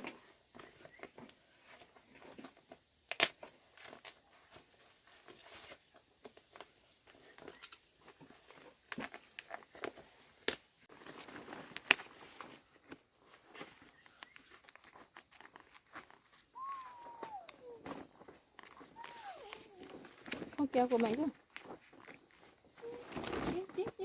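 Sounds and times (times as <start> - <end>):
insects droning: 0.0 - 24.0
handling clicks and rustling: 13.7 - 22.2
call falling in pitch: 16.6 - 18.0.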